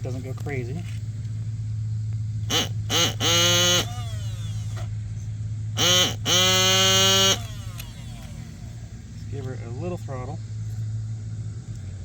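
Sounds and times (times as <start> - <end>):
steady low hum: 0.0 - 12.0
electric starter cranking engine: 2.4 - 5.0, 5.8 - 8.9.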